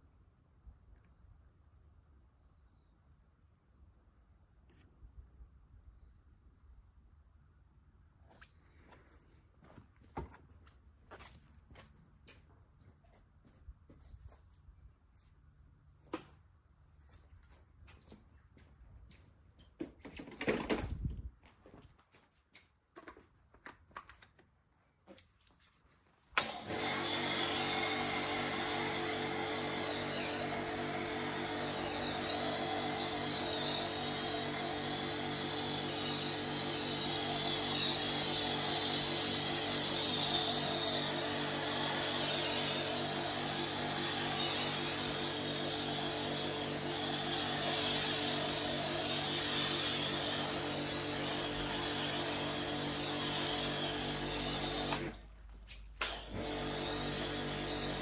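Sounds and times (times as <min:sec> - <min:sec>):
motor humming: 0:26.4 - 0:55.2.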